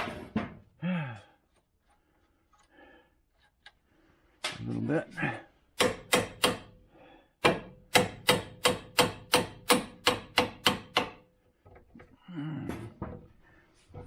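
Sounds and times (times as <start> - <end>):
hammer striking steel: 5.8 - 6.8, 7.4 - 11.2.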